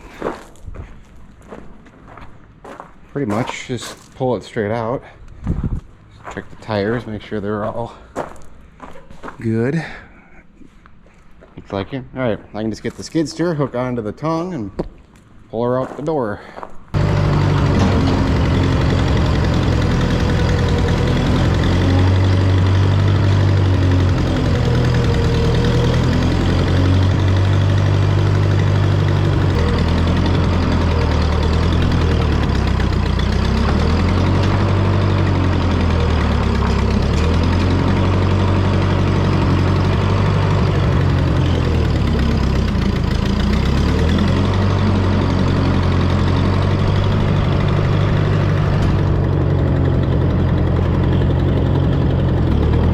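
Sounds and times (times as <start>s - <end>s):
skid steer engine running: 16.9s - 52.9s.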